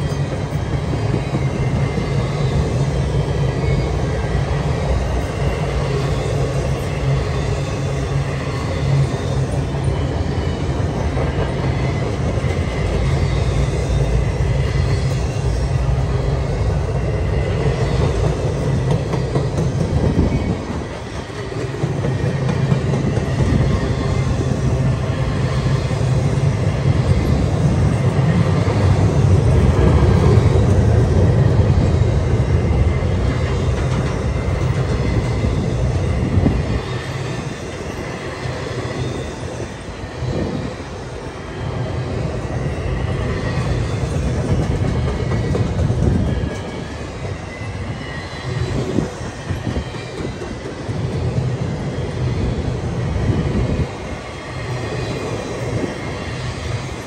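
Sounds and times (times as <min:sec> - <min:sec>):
freight train wheels rumbling: 0:00.0 - 0:57.0
train cars knocking: 0:17.6 - 0:24.9, 0:43.2 - 0:48.0.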